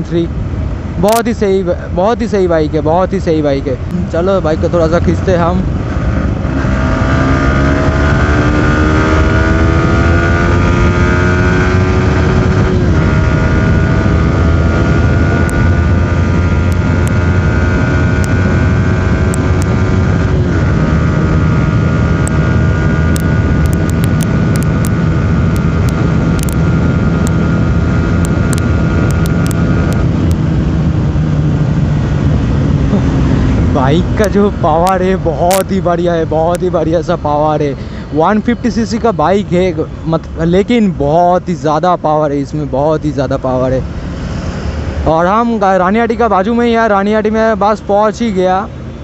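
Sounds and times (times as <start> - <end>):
motorcycle engine accelerating: 3.9 - 47.9.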